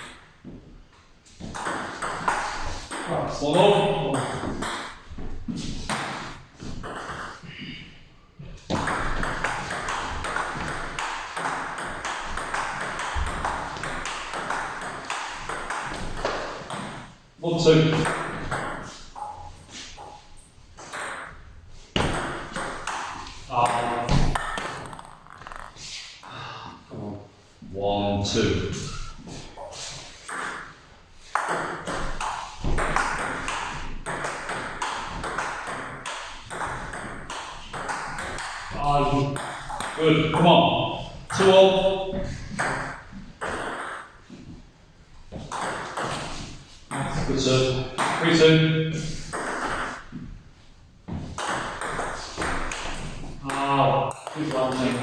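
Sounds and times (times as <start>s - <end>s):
table tennis ball pinging: 1.4s - 5.1s, 5.9s - 7.5s, 8.7s - 17.2s, 17.9s - 20.2s, 20.8s - 26.0s, 30.2s - 44.4s, 45.3s - 48.2s, 49.2s - 50.2s, 51.2s - 55.0s
table tennis ball clicking: 24.4s - 25.8s.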